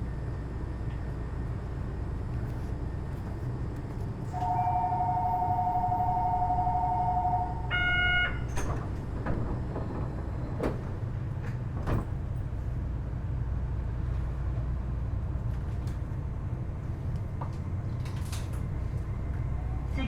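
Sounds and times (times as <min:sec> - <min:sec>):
low steady hum of train car: 0:00.0 - 0:20.0
two-tone door warning: 0:04.3 - 0:10.6
short chime: 0:04.4 - 0:07.7
sliding doors knocking shut: 0:08.4 - 0:12.2.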